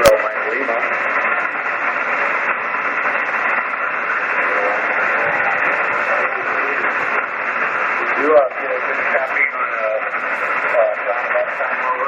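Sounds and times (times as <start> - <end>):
weak voice over radio: 0.0 - 1.0, 4.2 - 12.0
radio static hiss: 0.0 - 12.0.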